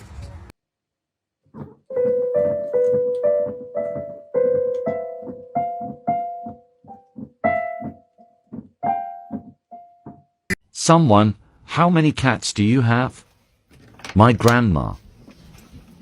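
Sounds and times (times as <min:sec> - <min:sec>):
piano notes: 0:01.5 - 0:10.5.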